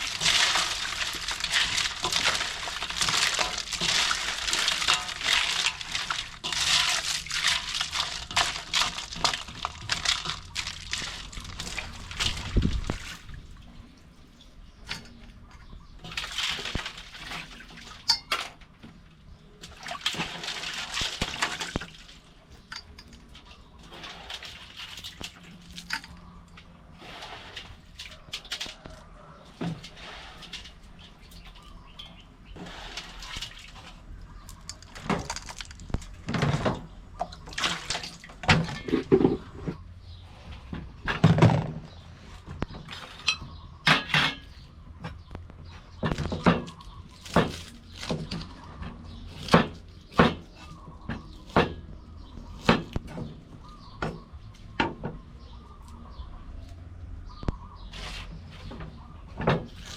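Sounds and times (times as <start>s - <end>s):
water splashing in basin: 0.0s - 13.7s, 19.6s - 22.3s, 32.6s - 39.7s.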